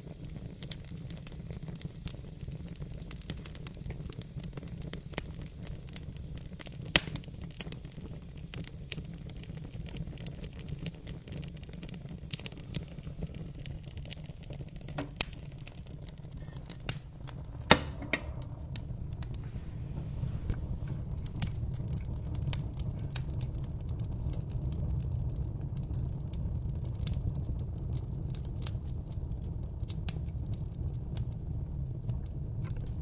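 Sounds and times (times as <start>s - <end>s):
wood fire crackling: 0.0s - 33.0s
steady low rumble: 12.6s - 28.1s.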